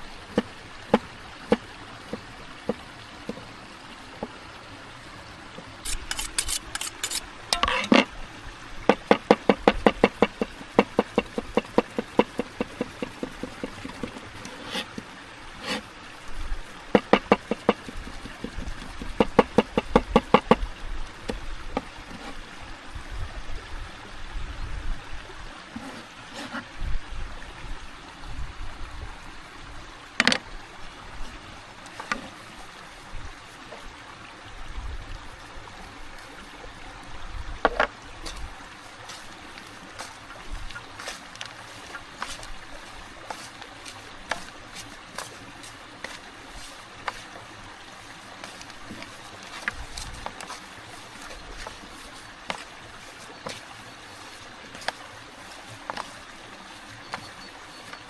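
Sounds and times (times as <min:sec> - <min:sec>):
stream running: 0:00.0 - 0:58.0
rapid knocking bursts: 0:08.9 - 0:14.2, 0:16.9 - 0:20.6.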